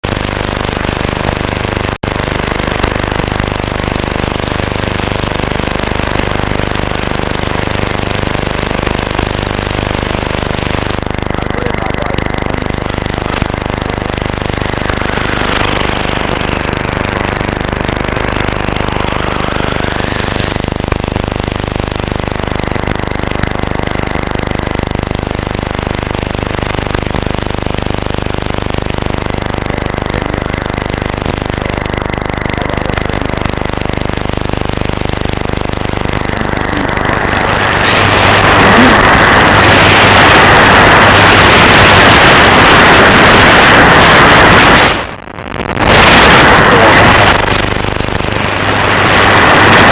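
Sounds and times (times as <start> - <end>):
rhythmic interference buzz: 0.0 - 49.9
thin steady radio whistles: 11.2 - 24.2.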